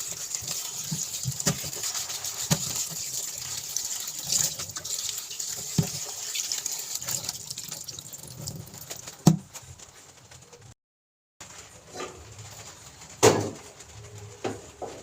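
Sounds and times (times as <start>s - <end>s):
water splashing from tap into sink: 0.0s - 9.4s.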